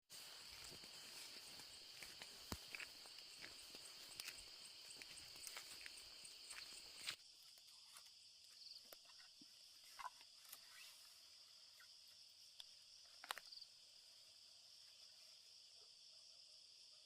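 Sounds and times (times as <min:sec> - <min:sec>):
insects trilling: 0:00.1 - 0:17.0.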